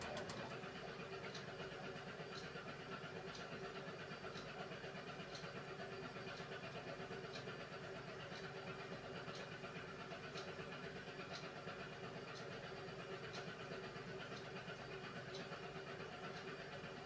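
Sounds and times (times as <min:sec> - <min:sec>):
washing machine motor hum: 0:00.0 - 0:00.8.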